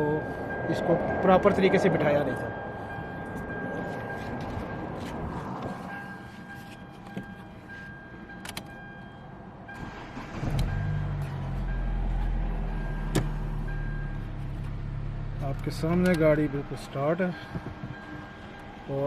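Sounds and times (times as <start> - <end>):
car engine starting and idling: 0.0 - 19.0
faint beep: 2.1 - 5.1, 17.3 - 19.0.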